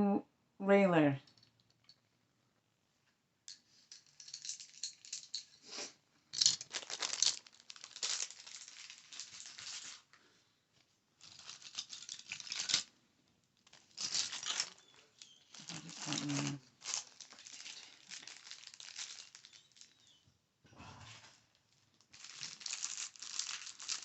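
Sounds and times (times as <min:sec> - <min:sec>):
plastic packaging crinkling: 0:03.7 - 0:05.6, 0:06.4 - 0:10.3, 0:11.2 - 0:12.9, 0:13.5 - 0:20.2, 0:21.5 - 0:24.0.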